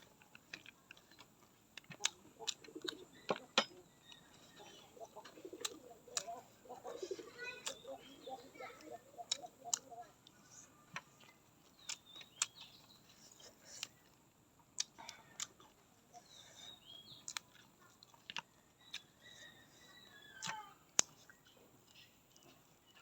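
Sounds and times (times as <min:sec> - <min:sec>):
chewing crunchy vegetables: 0:00.0 - 0:23.0.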